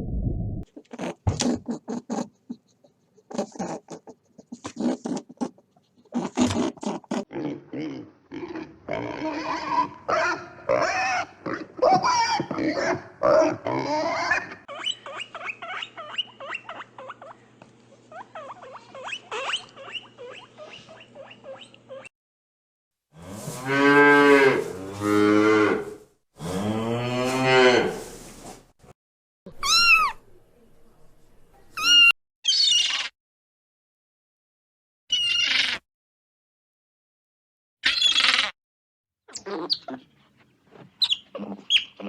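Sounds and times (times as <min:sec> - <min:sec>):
cow mooing: 0:23.2 - 0:28.0.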